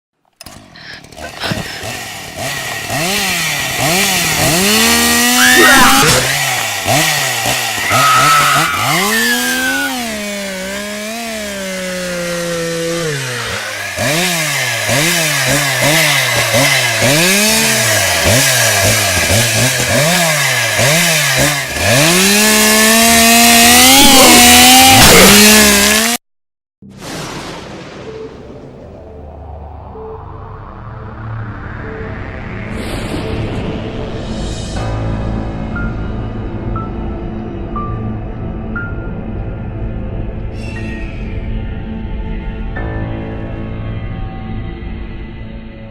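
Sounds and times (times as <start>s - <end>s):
chainsaw engine revving: 0.4s - 26.2s.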